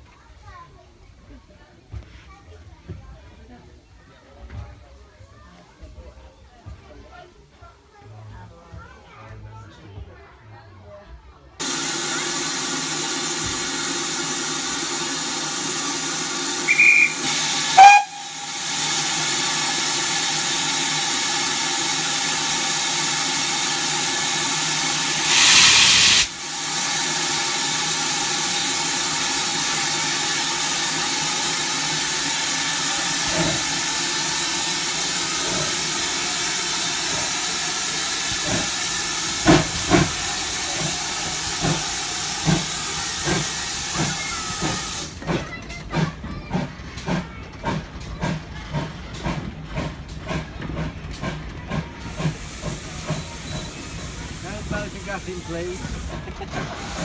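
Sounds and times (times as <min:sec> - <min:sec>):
rush of steam: 0:11.6 - 0:57.0
steam locomotive hissing: 0:11.6 - 0:57.0.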